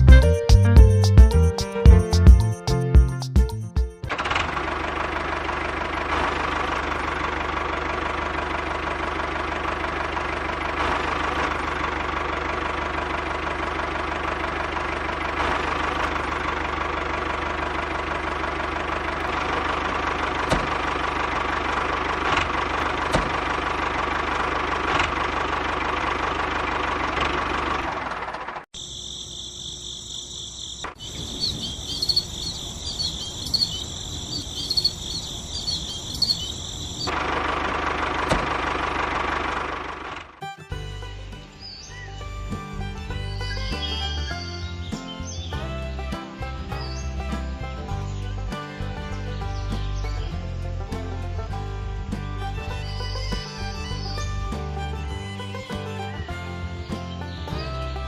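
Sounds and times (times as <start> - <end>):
small diesel engine running: 4.0 - 58.0
crickets chirping: 28.8 - 37.1.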